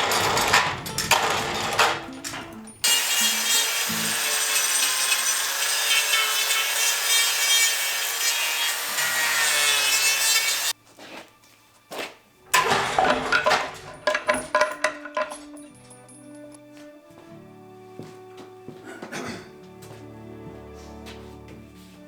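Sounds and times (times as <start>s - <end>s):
power saw cutting wood: 2.8s - 10.8s.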